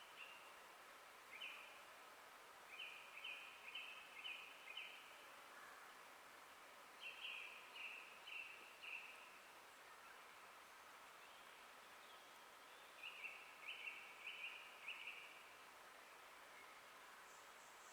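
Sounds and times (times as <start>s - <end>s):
forest background hiss: 0.0s - 17.9s
songbird singing: 1.3s - 1.8s, 2.7s - 5.7s, 7.0s - 10.2s, 11.2s - 15.4s.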